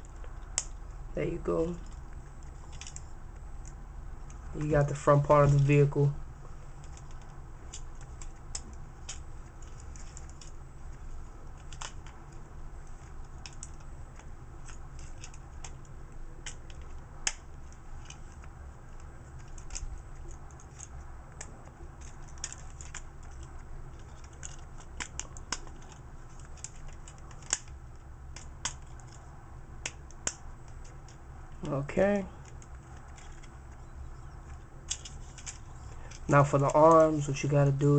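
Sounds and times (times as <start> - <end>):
steady low hum: 0.0 - 37.9
plastic parts clicking: 1.8 - 4.4, 6.8 - 31.8, 32.4 - 33.8, 34.4 - 37.3
plastic parts snapping: 2.7 - 4.4, 6.8 - 10.6, 11.5 - 29.2, 29.8 - 31.7, 34.4 - 37.2.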